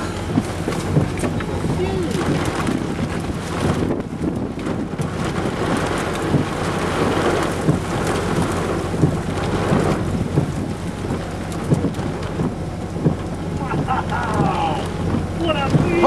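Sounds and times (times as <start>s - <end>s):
heavy rain: 0.0s - 16.0s
low rumble of thunder: 0.0s - 16.0s
raindrops tapping near microphone: 0.0s - 16.0s.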